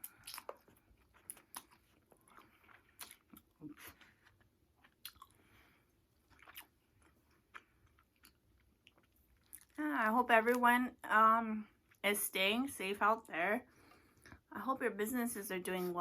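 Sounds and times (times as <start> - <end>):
person chewing food: 0.0 - 9.8.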